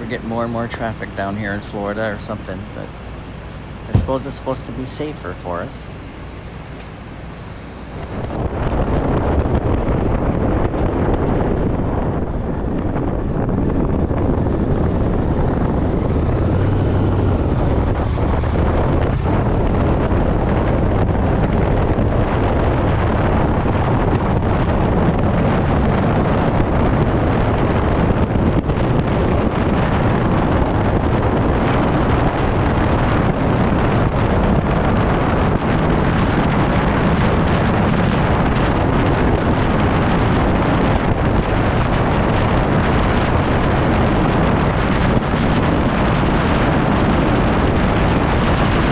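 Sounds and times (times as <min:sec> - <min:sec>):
wind noise on microphone: 0:00.0 - 0:48.9
motorcycle engine running: 0:03.9 - 0:04.3.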